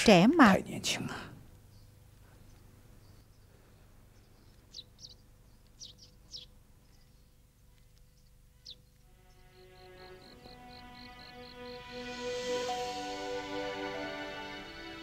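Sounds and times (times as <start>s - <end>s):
faint high bird chirps: 8.0s - 11.6s.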